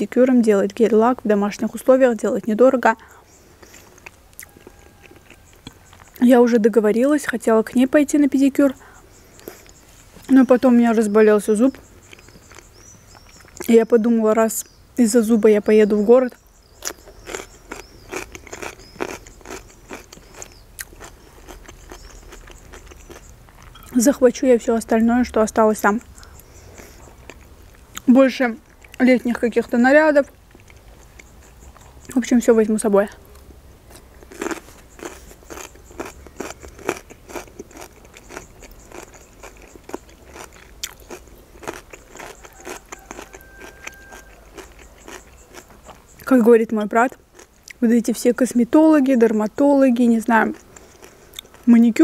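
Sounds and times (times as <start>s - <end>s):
wet chewing mouth sounds: 3.0s - 6.2s, 8.8s - 10.3s, 11.7s - 13.7s, 16.6s - 24.0s, 26.0s - 29.0s, 30.4s - 32.2s, 33.3s - 46.3s, 47.1s - 47.8s, 50.3s - 51.7s.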